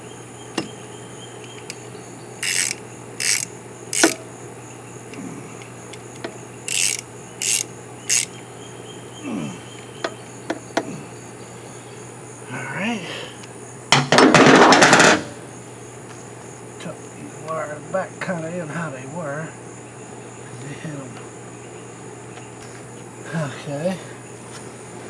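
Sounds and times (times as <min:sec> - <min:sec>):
ratchet tool rasping: 0:02.4 - 0:04.2, 0:06.7 - 0:08.3
small parts clicking: 0:02.4 - 0:04.2, 0:05.6 - 0:08.3.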